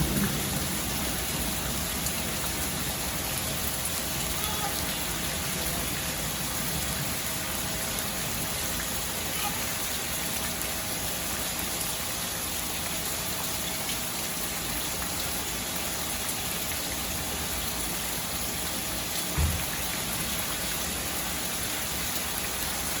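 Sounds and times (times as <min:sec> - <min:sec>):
steady rain: 0:00.0 - 0:23.0
low thump: 0:19.4 - 0:19.7.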